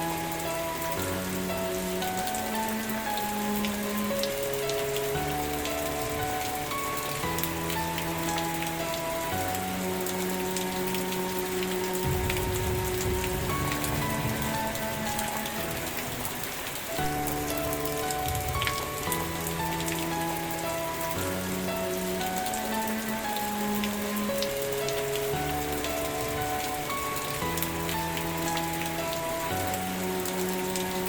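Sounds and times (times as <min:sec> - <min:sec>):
soft background music: 0:00.0 - 0:31.0
steady rain falling: 0:00.0 - 0:31.0.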